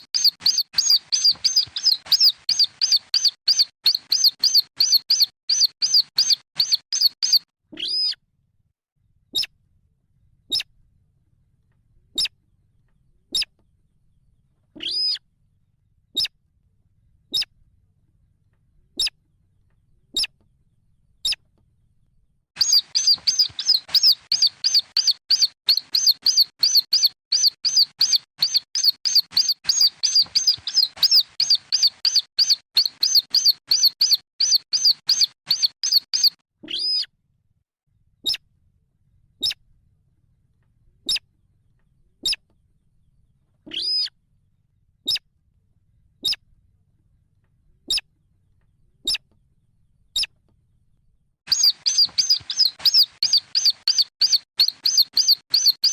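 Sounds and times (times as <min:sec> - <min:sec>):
bird chicks peeping: 0:00.0 - 0:08.2, 0:22.6 - 0:37.1, 0:51.5 - 0:55.9.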